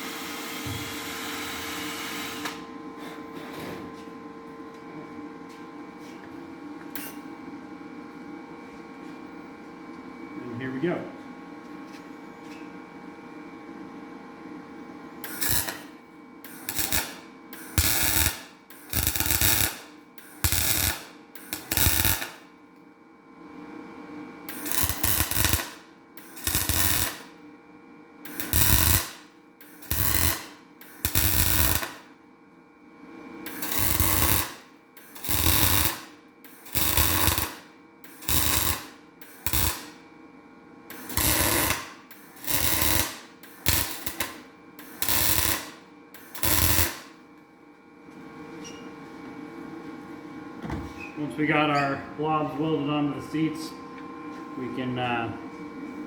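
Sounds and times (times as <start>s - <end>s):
welder hum: 0.0s - 2.6s, 15.2s - 22.6s, 24.4s - 27.4s, 28.2s - 32.1s, 33.4s - 40.0s, 40.8s - 47.2s
welding arc bursts: 0.0s - 2.6s, 15.2s - 22.5s, 24.5s - 27.4s, 28.3s - 32.1s, 33.5s - 40.0s, 40.9s - 47.2s.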